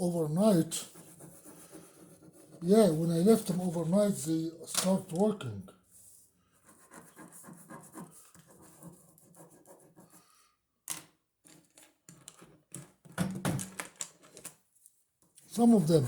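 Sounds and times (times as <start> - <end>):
ballpoint pen scribbling on paper: 0.7 - 3.6, 6.5 - 10.4.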